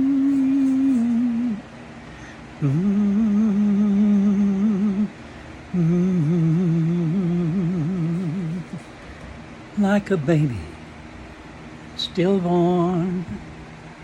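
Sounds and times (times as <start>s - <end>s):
man humming: 0.0s - 1.6s, 2.6s - 9.0s, 12.0s - 13.4s.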